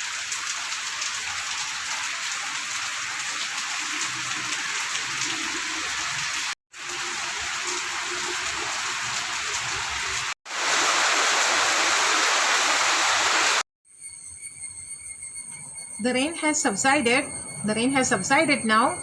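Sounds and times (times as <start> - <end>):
steady rain falling: 0.0 - 13.6.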